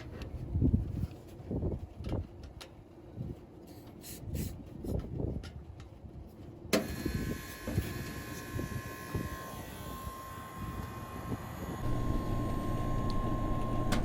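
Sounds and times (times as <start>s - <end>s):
condensing unit whining: 6.6s - 14.0s
low hum: 8.1s - 14.0s.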